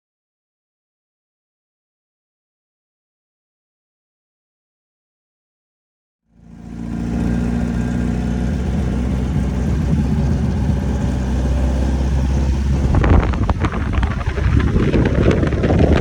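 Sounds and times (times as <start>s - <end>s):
car engine idling: 6.4s - 16.0s.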